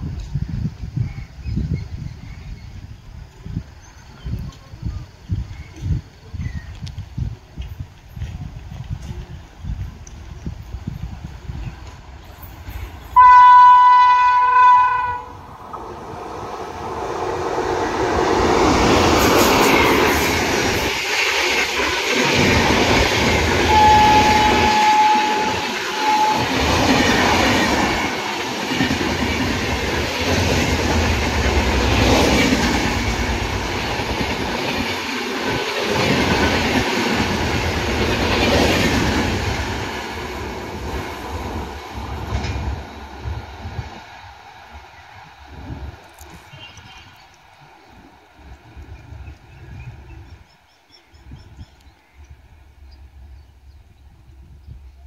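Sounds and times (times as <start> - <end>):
train passing with rumble: 0.0 - 55.0
locomotive horn: 13.1 - 15.4, 23.4 - 27.5
wheels clacking over rail joints: 17.9 - 43.2.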